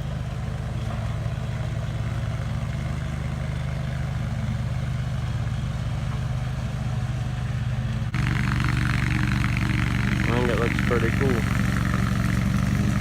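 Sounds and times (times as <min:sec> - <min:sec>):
atv engine idling: 0:00.0 - 0:13.0.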